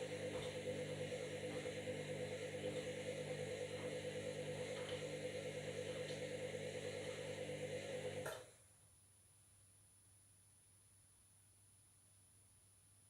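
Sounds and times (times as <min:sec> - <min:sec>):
washing machine humming: 0:00.0 - 0:08.5.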